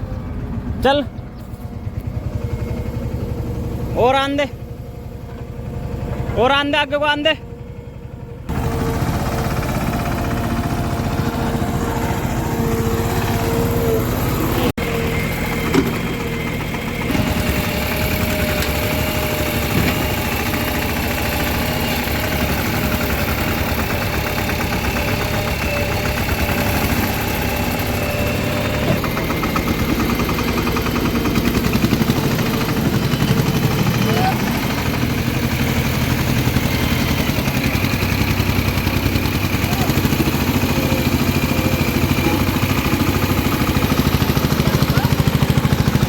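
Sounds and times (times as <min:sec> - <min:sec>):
heavy diesel engines running: 0:00.0 - 0:46.0.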